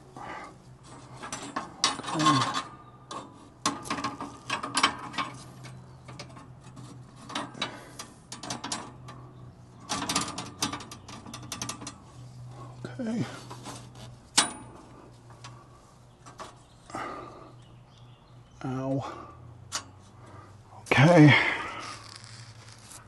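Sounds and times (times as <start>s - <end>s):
metallic clicks and clattering: 1.1s - 12.1s.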